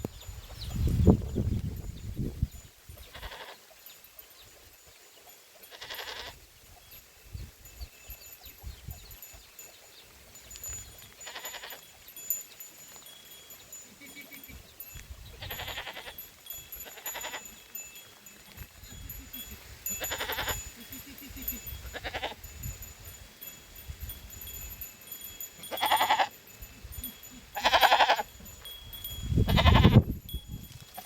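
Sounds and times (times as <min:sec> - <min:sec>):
goats bleating: 0:03.1 - 0:03.6, 0:15.4 - 0:22.5, 0:25.6 - 0:26.4, 0:27.0 - 0:28.3, 0:29.5 - 0:30.0.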